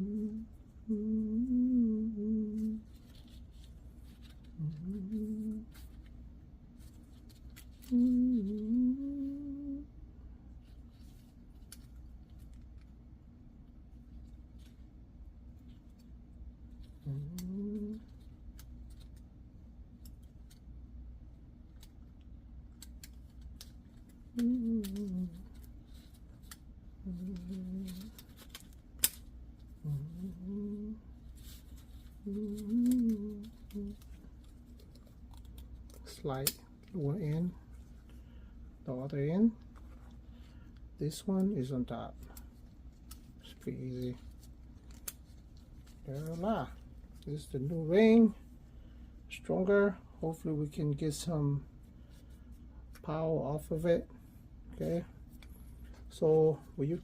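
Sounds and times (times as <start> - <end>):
man humming: 0.0 - 2.9, 4.5 - 5.8, 7.8 - 9.9, 17.0 - 18.1, 24.4 - 25.6, 27.0 - 28.2, 29.8 - 31.1, 32.2 - 34.2.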